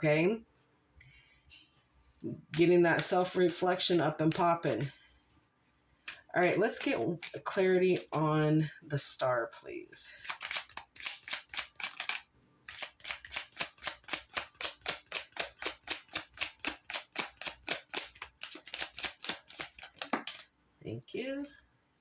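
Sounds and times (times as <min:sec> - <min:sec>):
cards being shuffled: 0:02.4 - 0:04.9, 0:06.0 - 0:08.2, 0:10.2 - 0:20.5.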